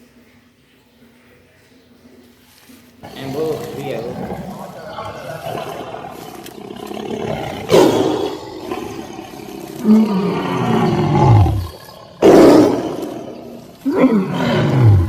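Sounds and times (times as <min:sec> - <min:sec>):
cat hissing: 0:03.0 - 0:15.0.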